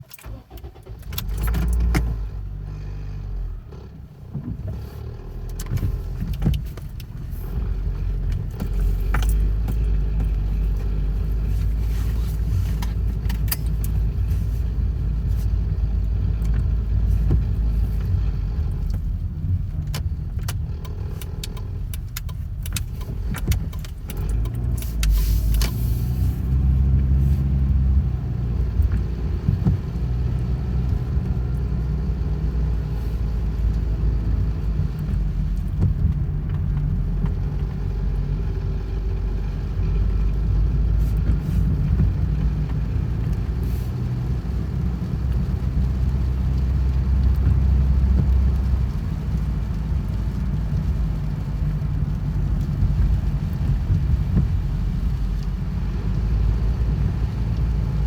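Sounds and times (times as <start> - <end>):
car engine rumble: 0.0 - 58.0
sharp clicks and taps: 19.7 - 25.8.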